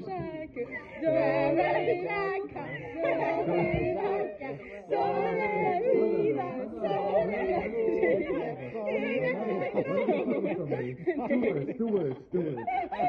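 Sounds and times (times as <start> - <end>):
group singing without instruments: 0.0 - 11.0
people talking: 0.0 - 13.0.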